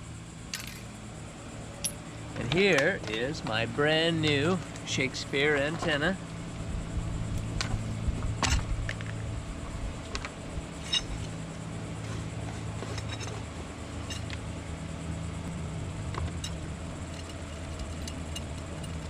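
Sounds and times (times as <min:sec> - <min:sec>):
steady low hum: 0:00.0 - 0:19.0
metallic clinks of hardware: 0:00.5 - 0:01.0, 0:01.8 - 0:02.1, 0:10.8 - 0:11.3, 0:14.0 - 0:14.4, 0:16.4 - 0:19.0.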